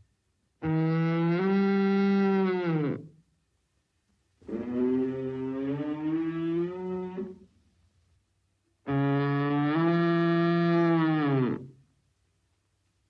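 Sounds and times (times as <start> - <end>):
cow mooing: 8.9 - 11.7.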